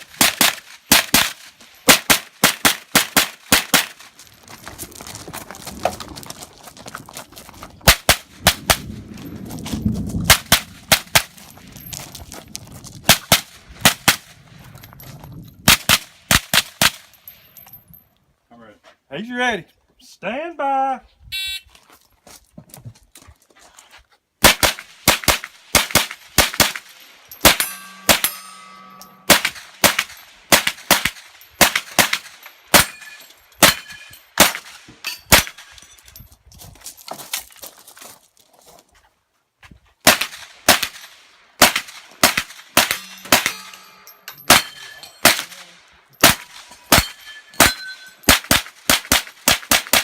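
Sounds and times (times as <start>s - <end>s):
bullets ringing steel plates: 25.8s - 36.2s, 42.8s - 49.4s
rapid gunshots: 48.3s - 50.0s.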